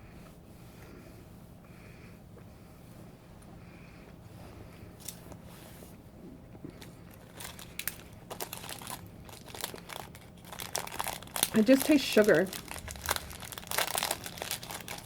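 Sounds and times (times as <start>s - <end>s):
plastic packaging crinkling: 6.8s - 15.0s.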